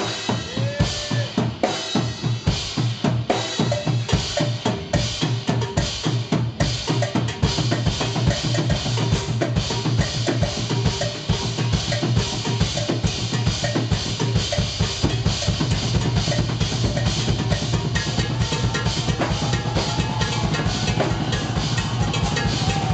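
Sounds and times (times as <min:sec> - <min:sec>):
rapid drum kit hits: 0:13.9 - 0:22.9.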